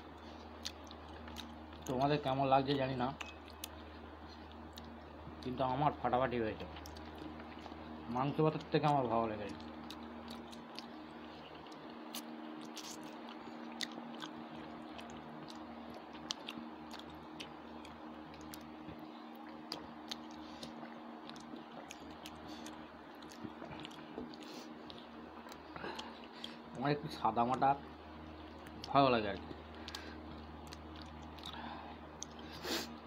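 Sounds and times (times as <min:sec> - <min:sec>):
low hum: 0:00.0 - 0:33.0
wet chewing mouth clicks: 0:00.2 - 0:02.1, 0:08.5 - 0:11.0, 0:11.6 - 0:26.8, 0:28.6 - 0:32.5.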